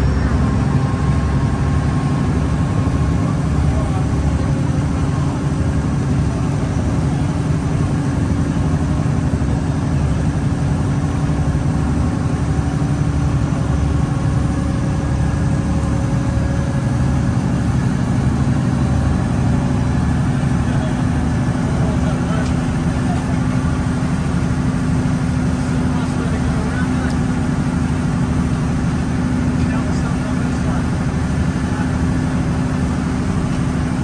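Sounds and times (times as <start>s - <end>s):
boat engine droning: 0.0s - 34.0s.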